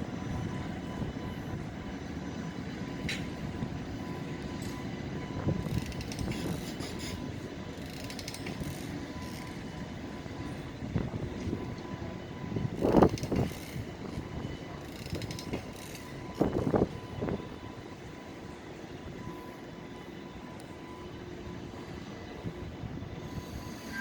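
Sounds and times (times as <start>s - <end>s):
freight train rolling past: 0.0s - 24.0s
wheels clattering over rail joints: 5.5s - 9.8s, 12.7s - 16.7s.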